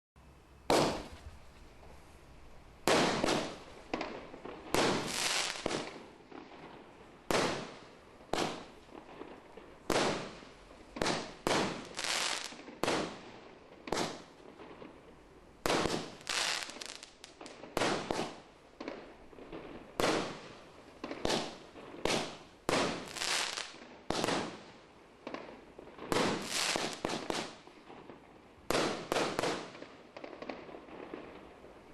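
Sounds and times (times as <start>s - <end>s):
fireworks exploding: 0.6s - 2.0s, 2.8s - 31.9s.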